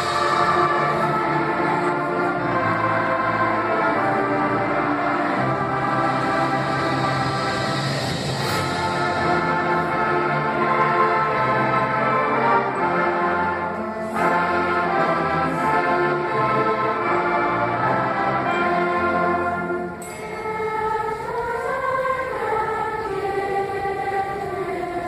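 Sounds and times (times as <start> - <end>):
choir singing held notes: 0.0 - 25.0
instrumental accompaniment: 0.0 - 25.0.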